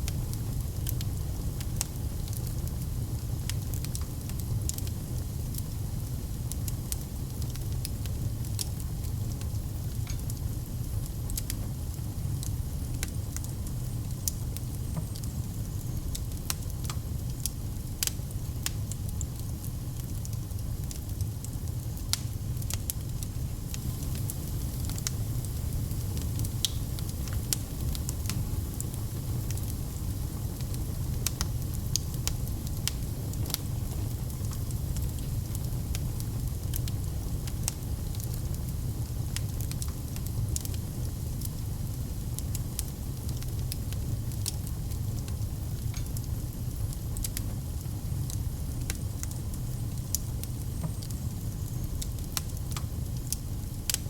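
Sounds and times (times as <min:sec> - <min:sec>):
low rumble of flames: 0:00.0 - 0:54.0
burning wood popping and snapping: 0:23.7 - 0:30.0.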